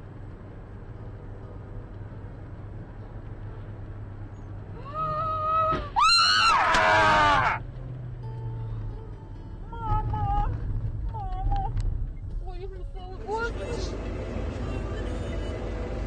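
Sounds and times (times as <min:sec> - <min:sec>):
low vehicle hum: 0:00.0 - 0:16.0
person screaming: 0:04.8 - 0:07.6.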